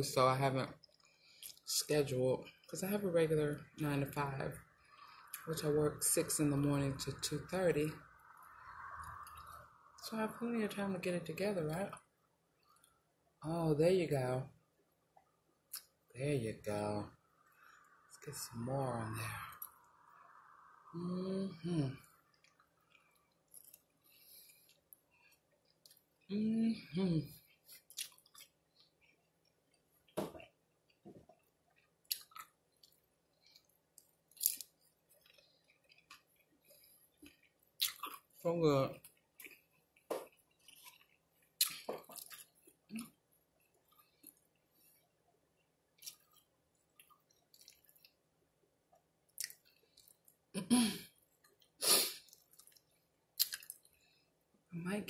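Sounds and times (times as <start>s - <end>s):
wet mouth chewing sounds: 22.2s - 26.3s, 27.3s - 38.4s, 39.0s - 45.1s, 46.0s - 48.2s, 49.3s - 50.4s, 51.4s - 53.9s.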